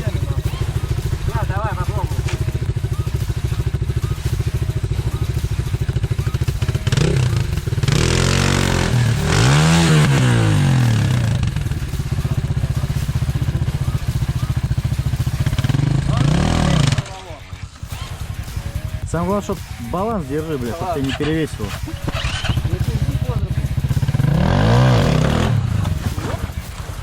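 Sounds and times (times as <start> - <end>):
motorbike engine idling and revving: 0.0 - 27.0
wheel spinning in mud: 21.0 - 27.0.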